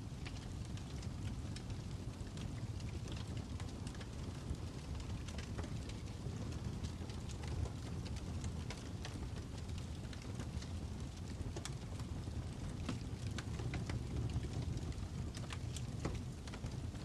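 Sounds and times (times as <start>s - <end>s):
fire crackling: 0.0s - 17.0s.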